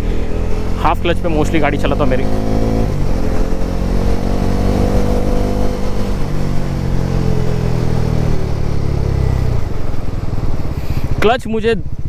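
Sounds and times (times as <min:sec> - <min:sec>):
motorcycle engine slowing: 0:00.0 - 0:12.0
wind and road noise: 0:00.0 - 0:12.0.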